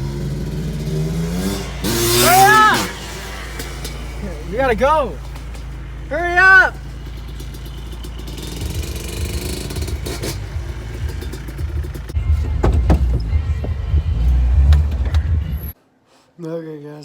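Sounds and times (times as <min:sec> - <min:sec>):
vehicle engine rumble: 0:00.0 - 0:15.8
knocks: 0:12.2 - 0:15.3.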